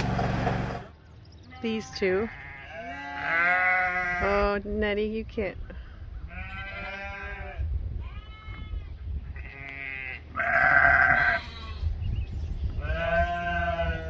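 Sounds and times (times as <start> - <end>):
sheep bleating: 1.5 - 4.5, 6.3 - 11.8, 12.8 - 14.0.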